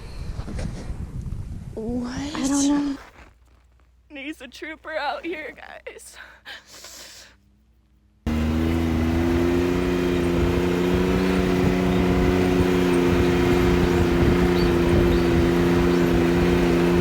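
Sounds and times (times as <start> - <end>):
wind and road noise: 0.0 - 4.1, 7.4 - 17.0
vehicle engine running: 8.3 - 17.0.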